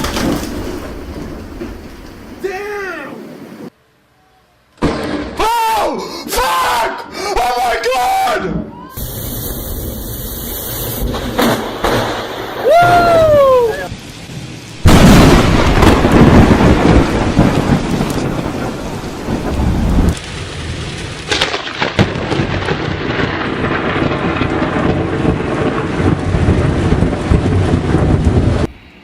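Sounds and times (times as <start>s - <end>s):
thunder rumbling: 0.0s - 3.7s, 8.5s - 28.8s
heavy rain: 9.0s - 28.7s.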